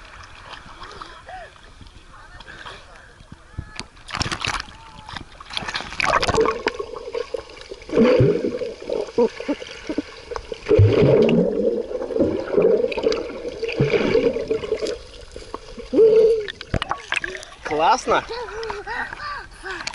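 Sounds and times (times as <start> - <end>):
sea water splashing and gurgling: 4.0 - 17.8.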